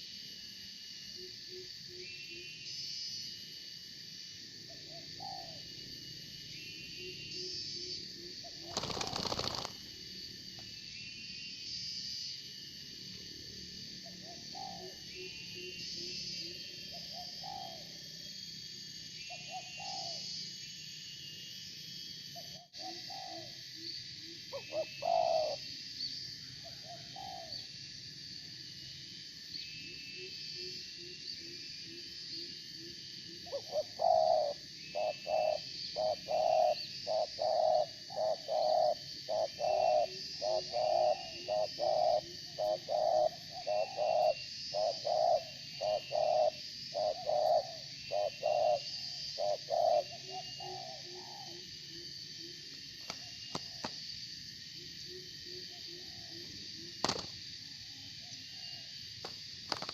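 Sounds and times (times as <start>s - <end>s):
insects and small birds chirping: 0.0s - 59.9s
doves cooing: 8.4s - 9.8s, 24.5s - 25.6s, 33.5s - 51.7s.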